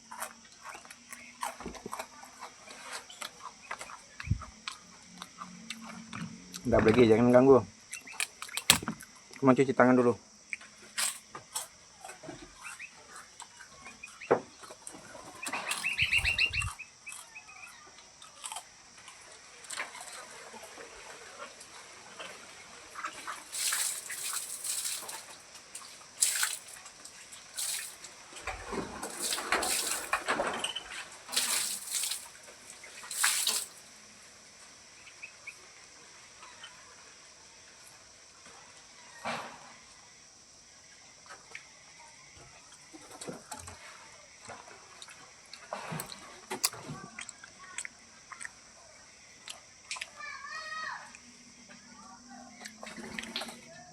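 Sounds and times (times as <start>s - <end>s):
water splashing from hand washing: 23.3s - 30.4s, 31.3s - 33.8s.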